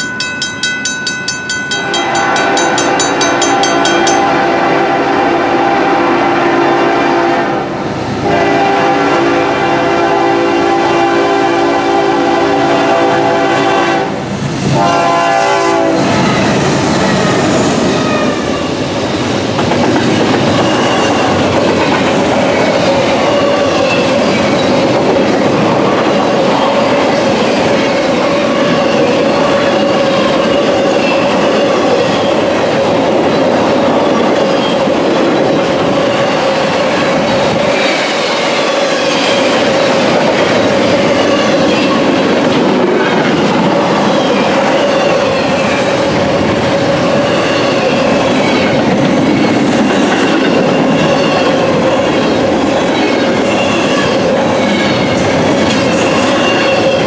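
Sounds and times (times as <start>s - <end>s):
train wheels clattering: 0.0s - 4.4s, 16.1s - 51.7s
train horn chord: 1.7s - 16.4s.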